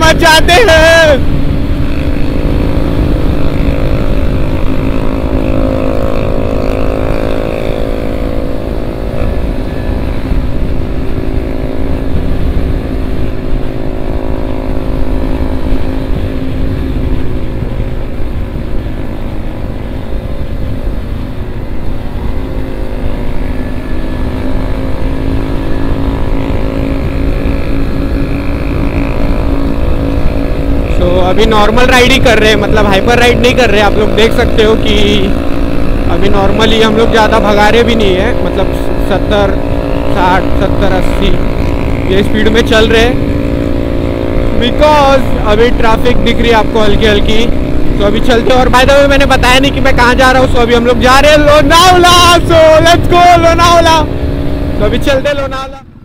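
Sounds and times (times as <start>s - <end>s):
motorcycle engine cruising: 0.0s - 56.0s
wind rushing over microphone: 0.0s - 56.0s.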